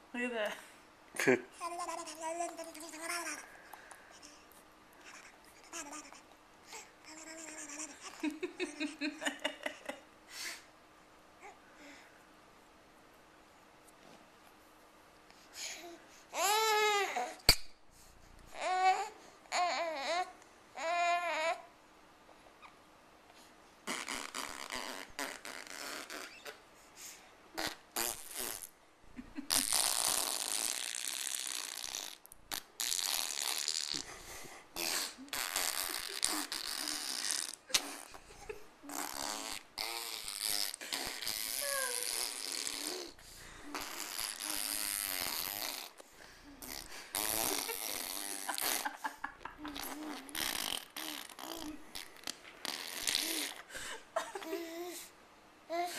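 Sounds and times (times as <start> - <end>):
baby babbling: 1.6 - 3.4, 5.0 - 8.2, 41.6 - 43.1
baby blowing raspberries: 23.8 - 28.7, 29.5 - 49.0, 49.6 - 53.9.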